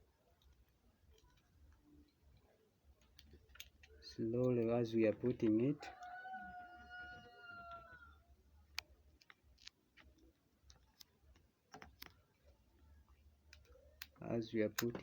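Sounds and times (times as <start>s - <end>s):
plastic plug and wires clicking: 3.0s - 4.7s, 8.7s - 12.5s, 13.5s - 15.0s.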